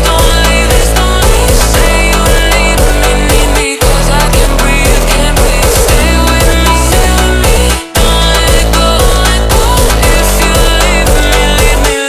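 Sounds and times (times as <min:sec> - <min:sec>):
loud music with heavy bass: 0:00.0 - 0:12.0.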